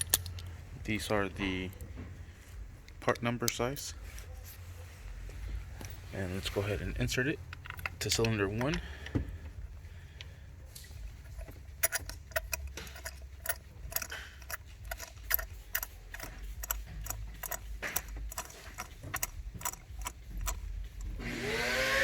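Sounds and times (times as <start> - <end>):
light metallic clicks: 7.4 - 9.2.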